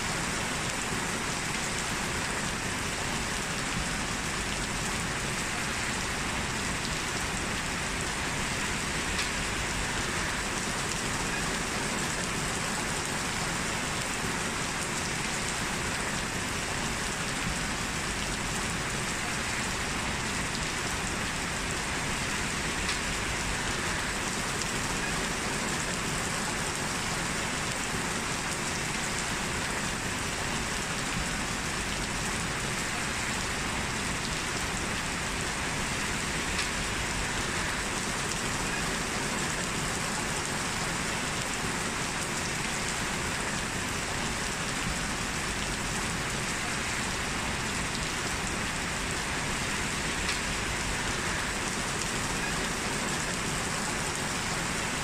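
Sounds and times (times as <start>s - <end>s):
heavy rain falling: 0.0s - 55.0s
faint raindrop ticks: 8.0s - 27.8s, 36.0s - 42.8s, 50.1s - 54.2s.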